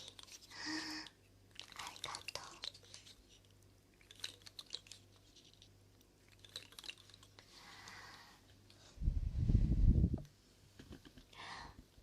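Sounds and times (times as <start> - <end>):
soft hiss: 7.2 - 12.0
steady low hum: 7.2 - 12.0.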